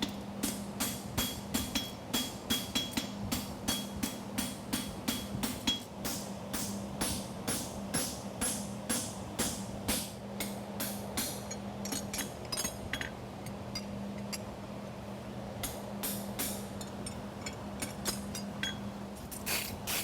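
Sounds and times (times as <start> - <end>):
hammer striking metal on anvil: 0.0 - 12.3
steady low hum: 0.0 - 20.0.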